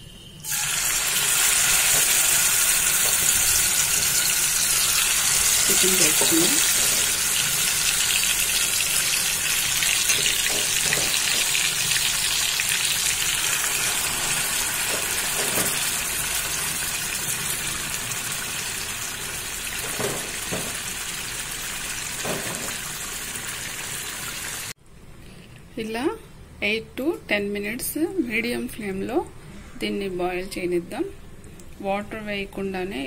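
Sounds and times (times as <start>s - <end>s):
chicken sizzling in hot oil: 0.4s - 24.8s.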